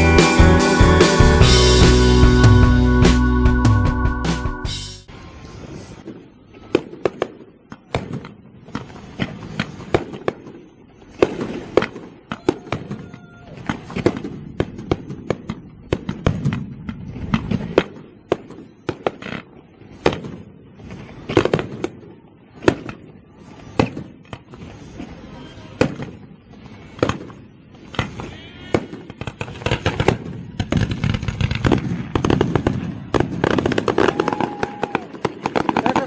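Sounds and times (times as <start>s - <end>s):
fireworks bangs and pops: 5.8s - 36.0s.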